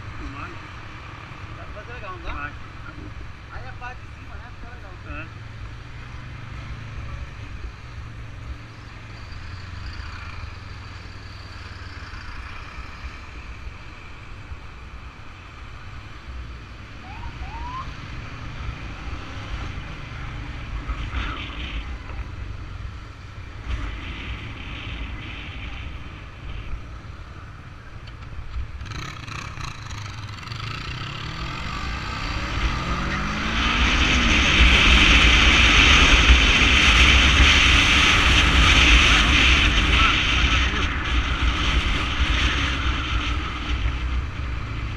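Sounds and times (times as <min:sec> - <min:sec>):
road and wind noise: 0:00.0 - 0:44.9.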